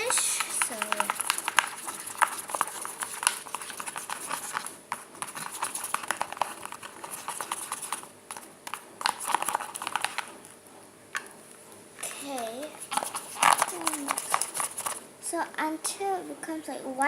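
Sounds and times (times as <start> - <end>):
spoon scraping bowl: 0.0 - 8.0, 12.6 - 15.0.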